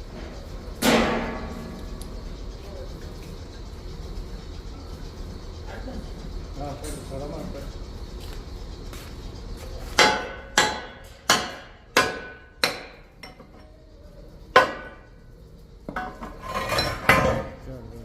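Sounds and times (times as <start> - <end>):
hammer striking steel plate: 10.0 - 13.6, 14.6 - 15.0
metal clatter: 15.9 - 17.6.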